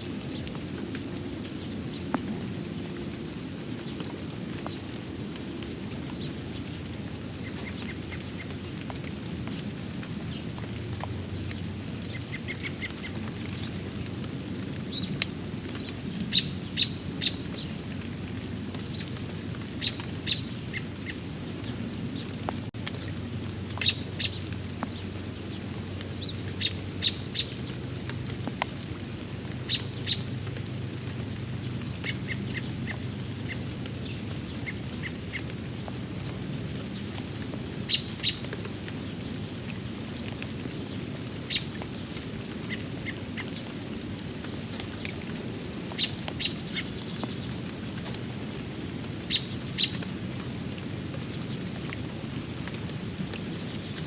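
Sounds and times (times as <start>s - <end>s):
steady rain: 0.0s - 54.0s
birds calling: 7.4s - 9.7s, 11.3s - 13.8s, 15.7s - 17.8s, 18.8s - 22.3s, 23.7s - 25.6s, 26.2s - 27.6s, 29.6s - 30.3s, 45.9s - 47.5s, 49.2s - 50.1s.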